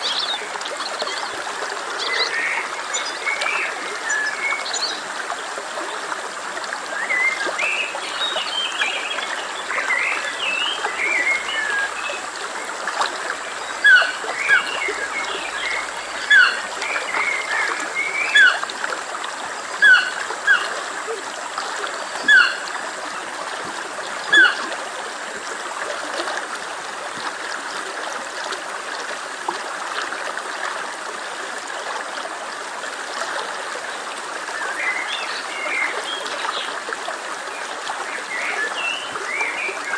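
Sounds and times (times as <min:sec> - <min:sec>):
stream flowing: 0:00.0 - 0:39.9
birds chirping: 0:13.3 - 0:18.6, 0:22.3 - 0:22.6.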